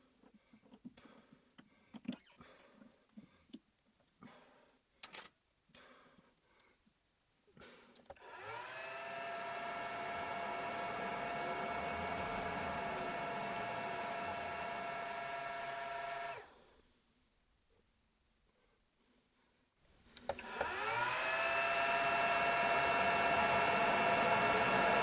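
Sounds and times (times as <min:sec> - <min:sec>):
power tool motor whining: 0:08.2 - 0:16.4, 0:20.3 - 0:25.0.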